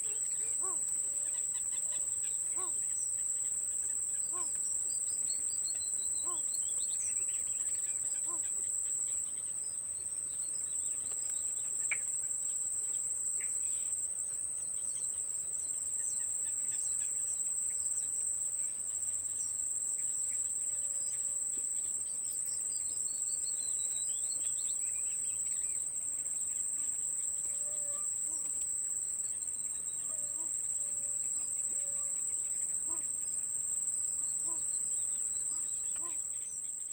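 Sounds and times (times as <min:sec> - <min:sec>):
faint bird chirps: 0:00.0 - 0:12.2, 0:34.4 - 0:36.9
high-pitched insect trill: 0:00.0 - 0:36.9.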